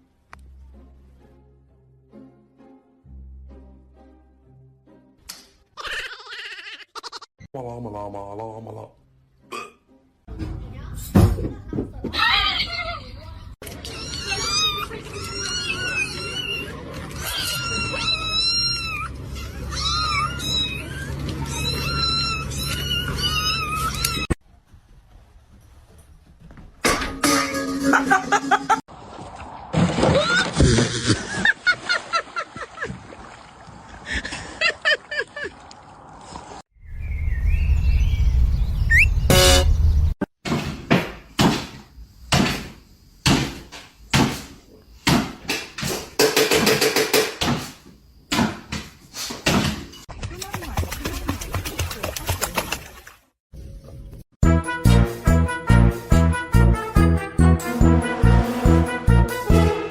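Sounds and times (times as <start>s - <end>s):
cat meowing: 13.8s - 24.3s
sharp knocks: 40.4s - 49.9s
rattling knocks: 45.1s - 47.6s.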